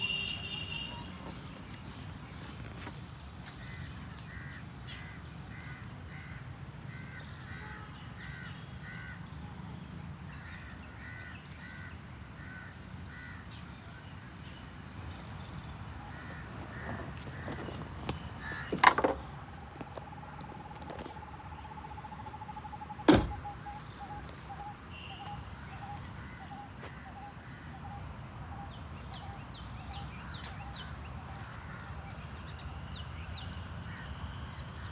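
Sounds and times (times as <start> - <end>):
bird repeating short call: 0.0 - 1.3.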